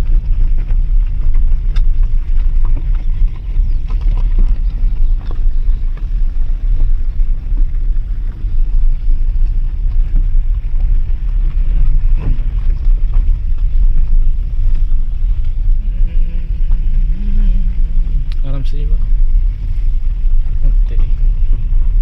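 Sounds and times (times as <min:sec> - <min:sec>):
moving vehicle rumble: 0:00.0 - 0:22.0
wind buffeting microphone: 0:00.0 - 0:22.0.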